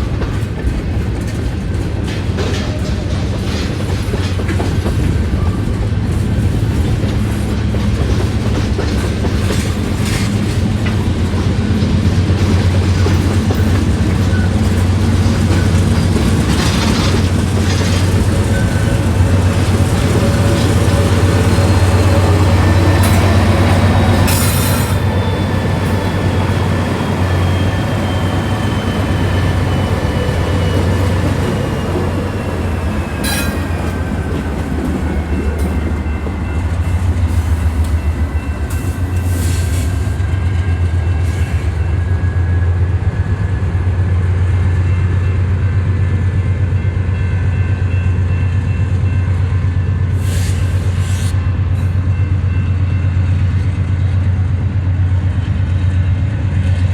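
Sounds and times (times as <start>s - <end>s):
freight train rumbling: 0.0s - 56.9s
train wheels squealing: 9.5s - 45.8s, 46.6s - 54.2s.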